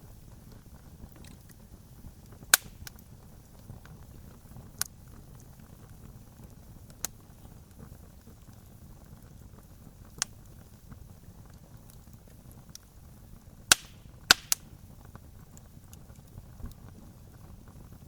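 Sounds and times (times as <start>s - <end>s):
fire rumble: 0.0s - 18.0s
small fire crackles: 0.0s - 18.0s
loud sharp fire pops: 1.1s - 12.9s, 13.6s - 18.0s.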